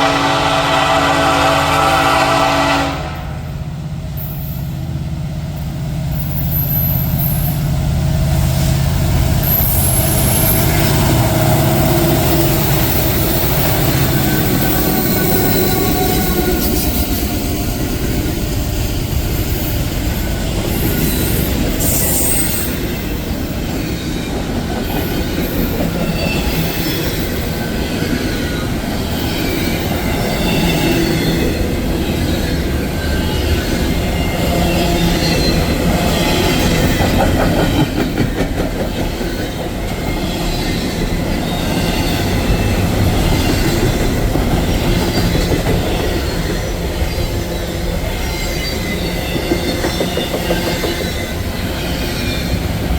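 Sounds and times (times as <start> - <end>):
railroad cars rolling: 0.0 - 52.9
wheel squeal: 20.7 - 23.2.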